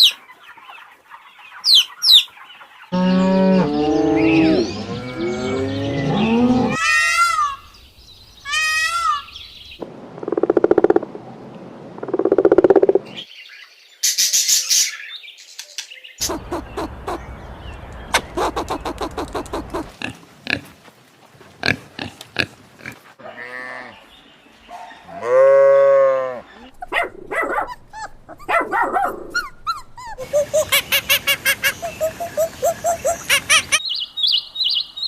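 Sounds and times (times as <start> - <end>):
loud drawn-out animal call: 2.9 - 7.7
rapid repeated animal calls: 16.2 - 17.3, 18.2 - 20.7.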